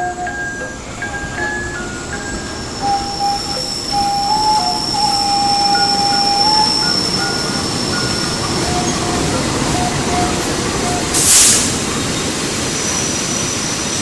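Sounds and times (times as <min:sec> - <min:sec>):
train wheels rumbling on rails: 0:00.0 - 0:14.0
short sharp hiss: 0:11.2 - 0:11.8.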